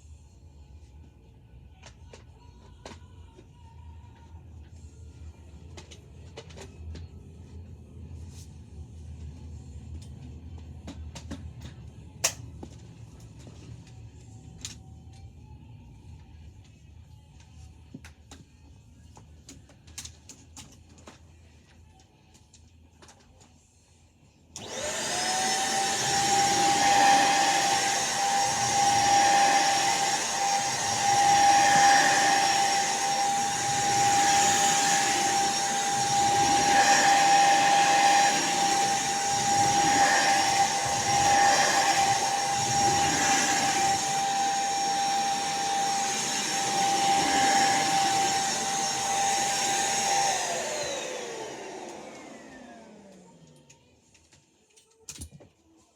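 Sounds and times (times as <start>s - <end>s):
vacuum cleaner whine: 24.5s - 53.8s.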